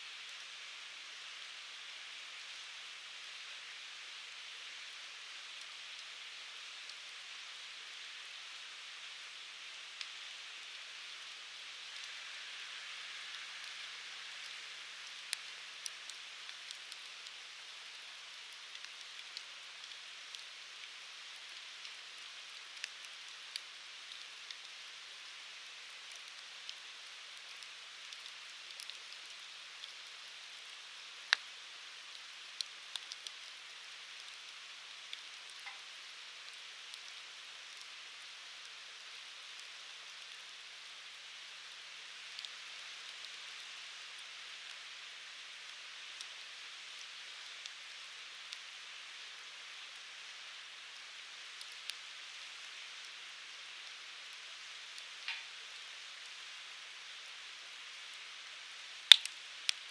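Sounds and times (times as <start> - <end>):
fire crackles and pops: 0.1 - 59.9
firewood burning: 13.6 - 50.8, 58.6 - 59.9.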